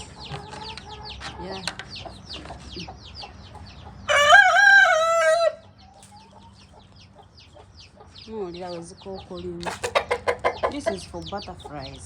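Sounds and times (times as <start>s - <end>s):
chicks peeping: 0.0s - 12.0s
rooster crowing: 4.1s - 5.6s.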